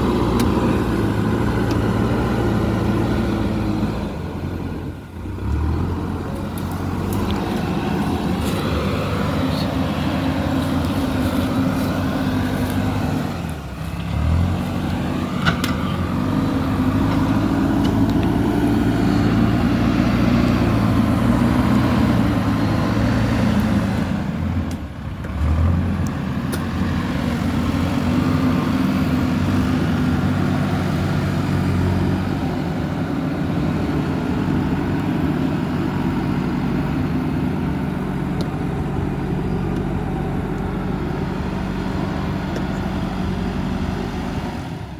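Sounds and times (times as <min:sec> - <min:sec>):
diesel engine under load: 0:00.0 - 0:44.9.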